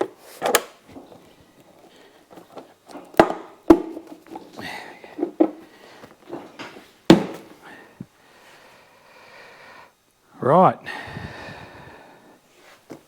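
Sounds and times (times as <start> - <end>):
loud knocks on motorcycle: 3.2 - 4.0, 6.6 - 7.6.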